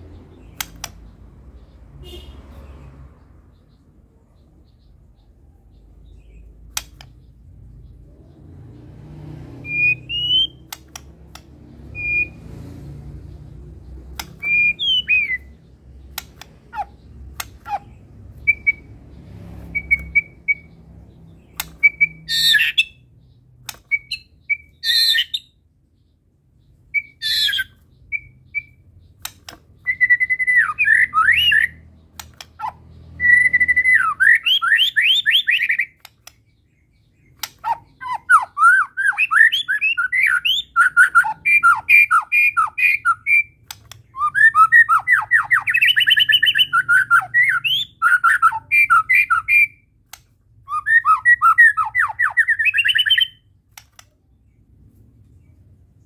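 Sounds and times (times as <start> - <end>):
harsh rasping bird calls: 0.0 - 54.1
bird singing whistled notes: 9.6 - 11.0, 11.8 - 12.6, 13.3 - 25.6, 26.6 - 50.0, 50.6 - 53.5.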